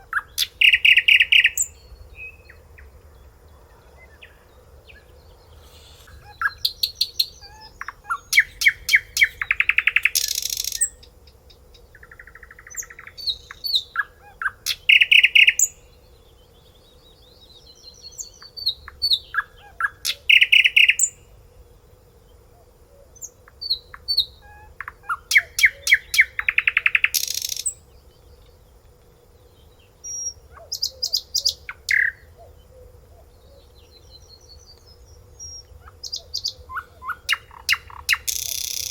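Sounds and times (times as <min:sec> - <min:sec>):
finch singing: 0:03.7 - 0:11.1, 0:30.0 - 0:32.3.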